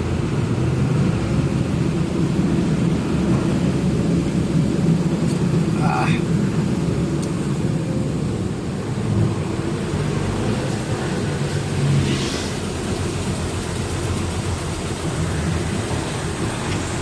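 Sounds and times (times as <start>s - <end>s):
road noise: 0.0s - 17.0s
truck engine rumbling: 0.0s - 17.0s.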